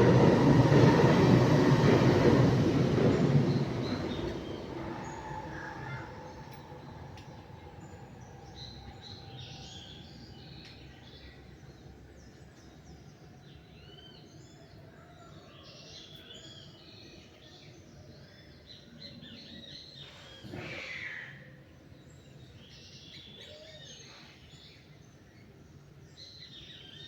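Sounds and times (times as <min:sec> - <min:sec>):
songbirds chirping: 0:00.3 - 0:20.6.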